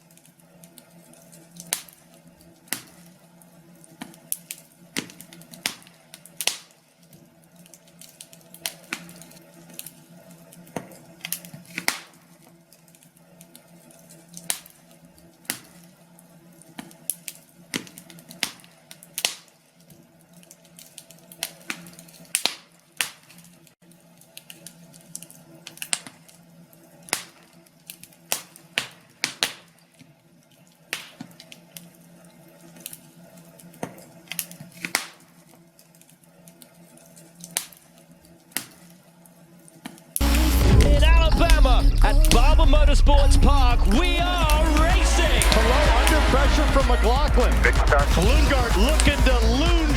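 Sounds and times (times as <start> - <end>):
log fire crackling and popping: 3.9 - 6.8, 7.5 - 12.3, 33.7 - 35.3, 40.1 - 49.9
low steady hum: 40.2 - 49.9.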